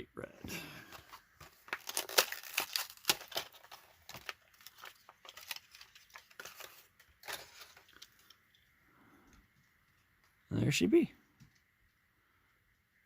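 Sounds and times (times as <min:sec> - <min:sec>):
plastic blister pack crackling: 0:01.1 - 0:08.4.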